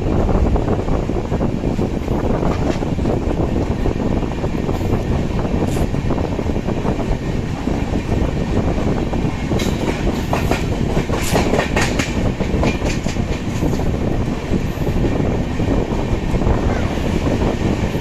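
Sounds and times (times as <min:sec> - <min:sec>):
train wheels rumbling on rails: 0:00.0 - 0:18.0
wheels clacking over rail joints: 0:09.2 - 0:15.1.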